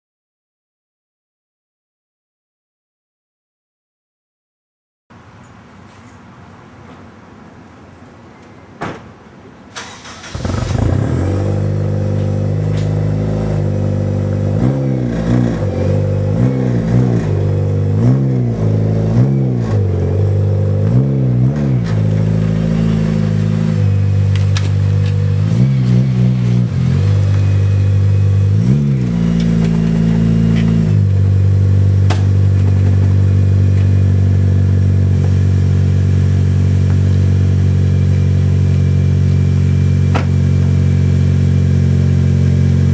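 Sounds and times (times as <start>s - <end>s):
car engine starting: 9.7s - 42.9s
car engine idling: 9.8s - 19.2s, 19.8s - 42.9s
engine revving in throttle blips: 9.8s - 42.9s.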